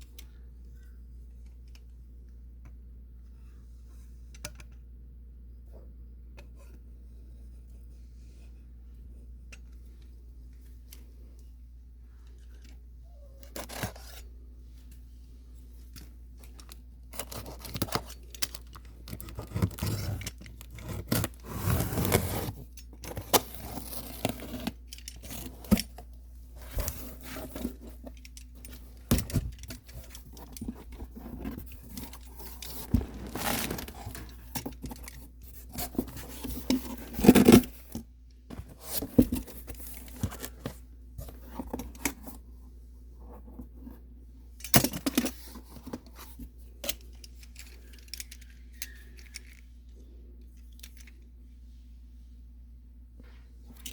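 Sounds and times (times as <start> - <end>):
low steady hum: 0.0 - 53.9
packaging tearing and rustling: 17.1 - 25.9, 29.0 - 37.9.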